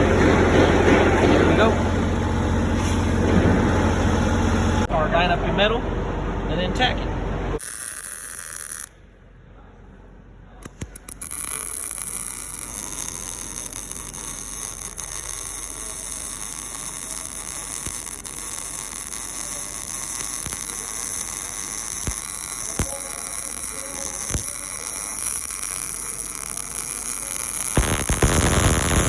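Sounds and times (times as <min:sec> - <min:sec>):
sharp welding pops: 0:07.6 - 0:08.9, 0:10.6 - 0:29.0
welding arc on steel: 0:07.6 - 0:09.0, 0:10.6 - 0:29.0.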